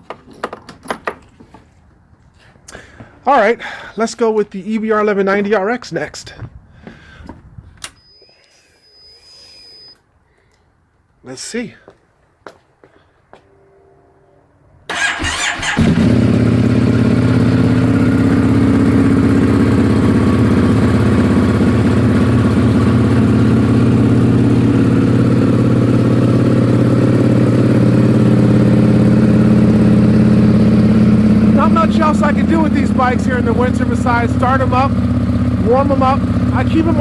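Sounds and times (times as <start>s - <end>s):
electric starter cranking: 14.9s - 16.3s
motorcycle engine idling: 14.9s - 37.0s.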